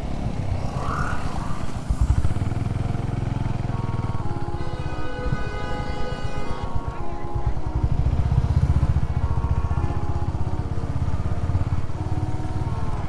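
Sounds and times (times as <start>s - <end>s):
motorcycle engine running: 0.0s - 13.0s
melodic tune: 3.6s - 13.0s.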